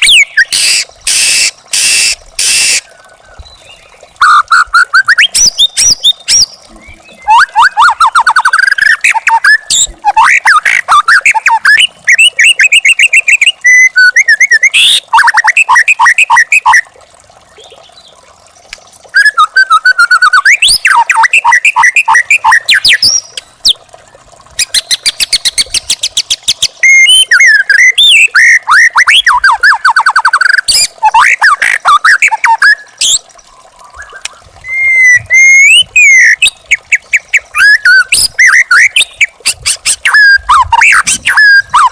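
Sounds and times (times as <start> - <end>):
bird singing whistles: 0.0 - 2.8, 19.2 - 23.4, 26.8 - 33.2, 33.9 - 36.5.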